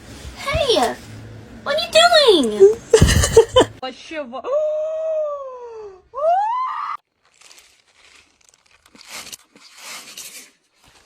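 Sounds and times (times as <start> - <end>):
crinkling and rustling: 7.2 - 9.4.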